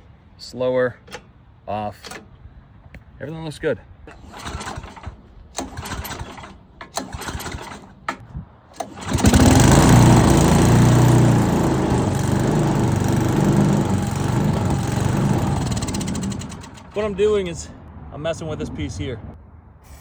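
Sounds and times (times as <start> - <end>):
wood chipper engine running: 4.2 - 7.9, 8.8 - 17.4.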